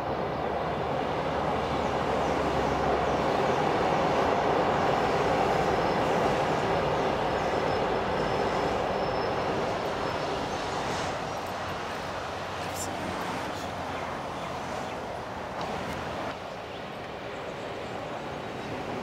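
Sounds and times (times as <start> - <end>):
train wheels rumbling on rails: 0.0 - 13.9
faint high whine: 5.2 - 14.6.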